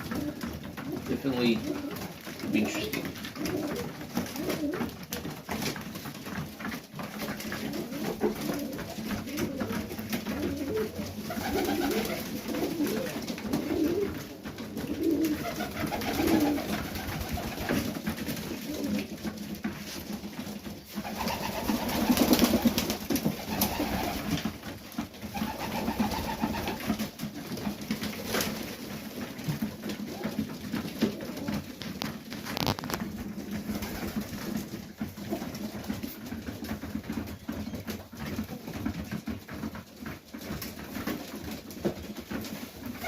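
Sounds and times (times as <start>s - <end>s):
pigeons cooing: 0.0s - 5.2s, 7.3s - 19.2s, 20.8s - 24.5s, 25.3s - 27.1s, 29.5s - 34.4s.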